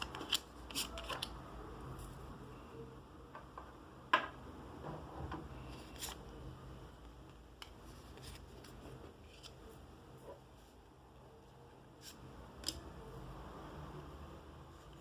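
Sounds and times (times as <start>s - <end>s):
cards and packaging rustling: 0.0s - 1.4s.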